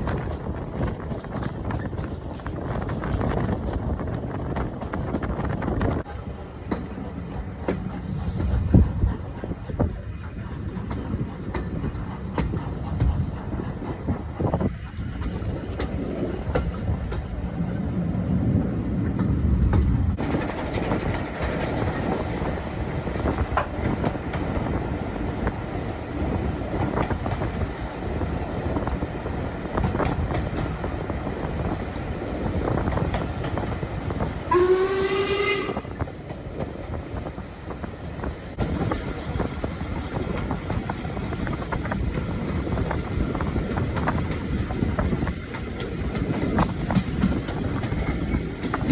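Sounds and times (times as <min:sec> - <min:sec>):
train wheels clattering: 0:00.0 - 0:17.8, 0:18.8 - 0:48.9
steam locomotive whistle: 0:34.5 - 0:36.0.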